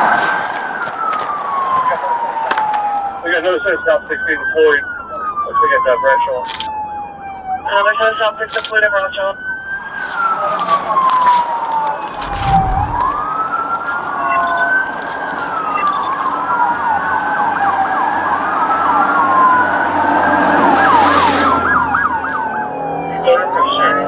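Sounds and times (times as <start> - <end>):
police siren wailing: 0.7 - 7.7, 17.3 - 24.0.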